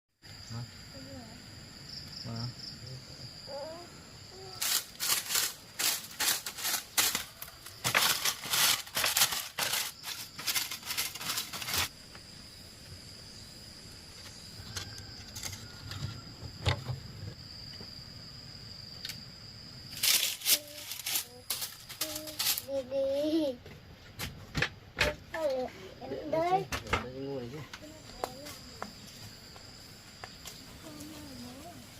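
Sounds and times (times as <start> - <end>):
high-pitched insect drone: 0.3 - 23.6, 25.5 - 31.9
crackling handling noises: 4.6 - 12.2, 19.9 - 22.8.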